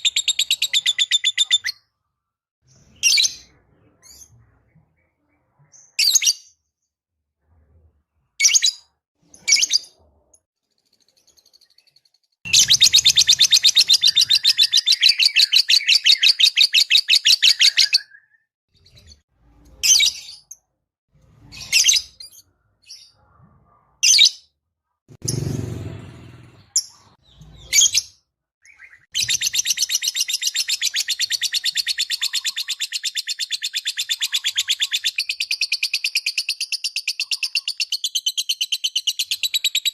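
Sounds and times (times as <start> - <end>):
lovebird chirping: 0.0 - 1.9, 10.8 - 20.6
lovebird chattering trill: 29.2 - 39.5.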